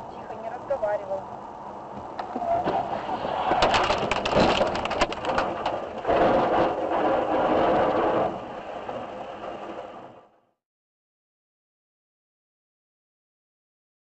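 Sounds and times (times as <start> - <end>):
crunching collision impacts: 2.6 - 8.3.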